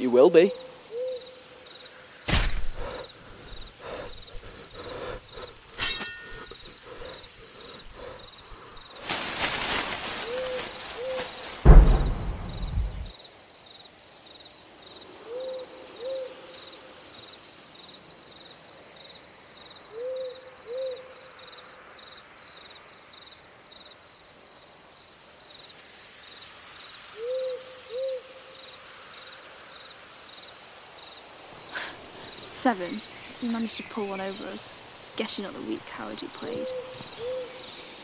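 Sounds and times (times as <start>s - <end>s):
cricket chirping: 0.0s - 38.0s
owl hooting: 0.5s - 1.4s, 15.3s - 16.4s, 19.9s - 21.1s, 27.2s - 28.3s, 36.3s - 37.8s.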